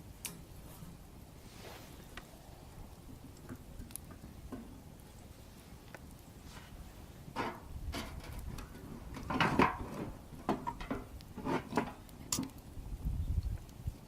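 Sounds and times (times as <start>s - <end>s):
wooden knocks and clatters: 7.4s - 12.0s.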